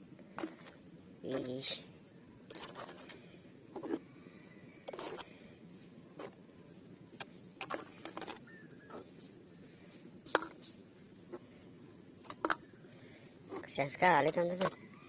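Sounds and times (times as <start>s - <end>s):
plastic toys knocking and scraping: 2.5s - 4.0s, 4.8s - 5.3s, 7.2s - 9.1s, 10.3s - 11.5s, 12.2s - 12.7s, 13.5s - 14.8s.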